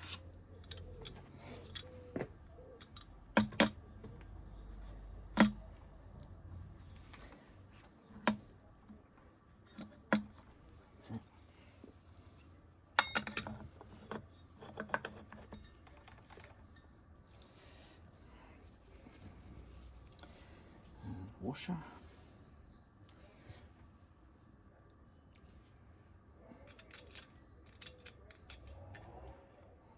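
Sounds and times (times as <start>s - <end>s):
metal parts and tools clinking: 0.0s - 2.1s, 2.8s - 3.9s, 12.1s - 17.5s, 26.5s - 29.6s.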